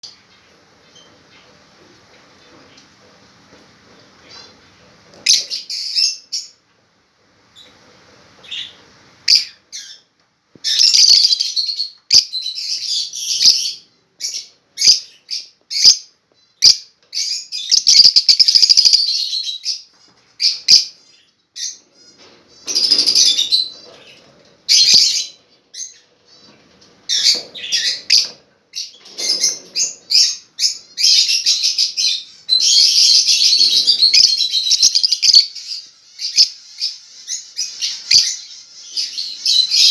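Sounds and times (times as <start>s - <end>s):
parrots chirping and chattering: 4.2s - 6.6s, 7.5s - 39.9s.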